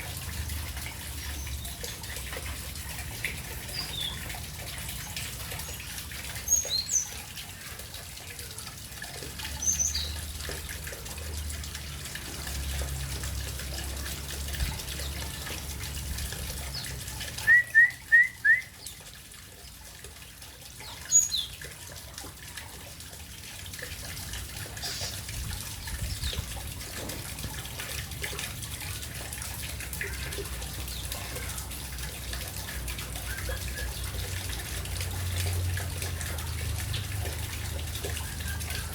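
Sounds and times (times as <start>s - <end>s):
running water rushing: 0.0s - 38.9s
small birds chirping: 9.6s - 10.3s, 20.8s - 21.7s, 24.8s - 26.6s.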